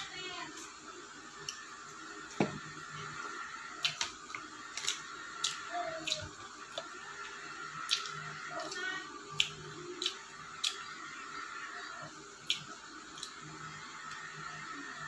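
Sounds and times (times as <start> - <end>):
faint steady hum: 0.0 - 15.0
chewing crispy food: 3.7 - 11.0, 12.4 - 13.6
wet mouth clicks and smacks: 3.8 - 4.1, 12.4 - 13.4.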